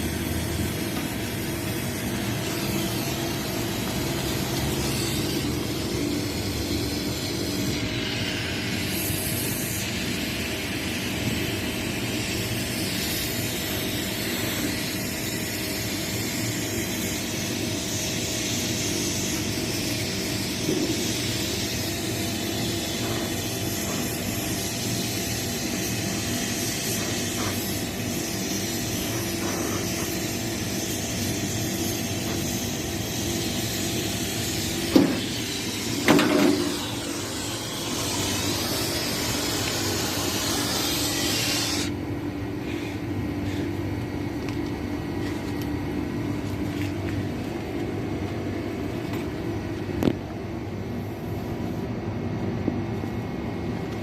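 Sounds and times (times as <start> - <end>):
gas hissing through lines: 0.0 - 44.6
low machine hum: 27.7 - 54.0.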